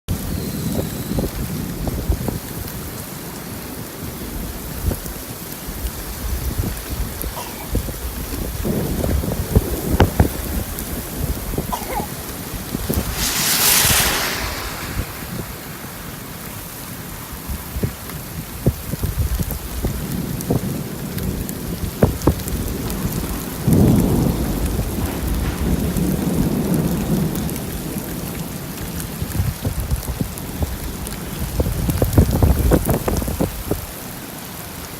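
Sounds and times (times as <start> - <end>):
rain falling: 0.1 - 34.9
low rumble of thunder: 4.0 - 33.8
sharp drop hits: 12.8 - 16.9.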